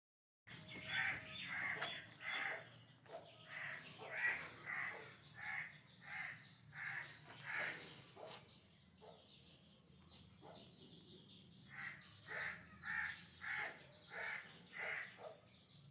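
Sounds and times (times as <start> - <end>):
bird calling: 0.5 - 8.4.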